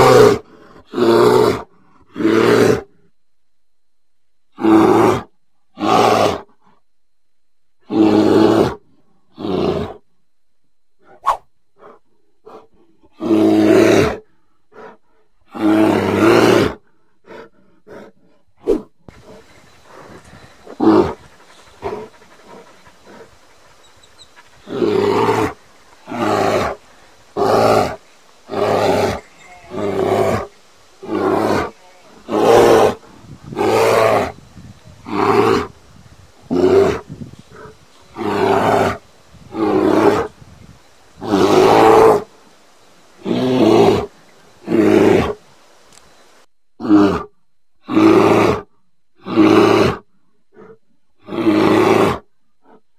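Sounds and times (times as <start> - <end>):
bear roaring: 0.0 - 3.1, 4.5 - 6.6, 7.8 - 10.0, 11.8 - 18.2, 19.1 - 46.2, 46.8 - 52.8
bear grunts: 11.8 - 18.4, 19.1 - 42.4.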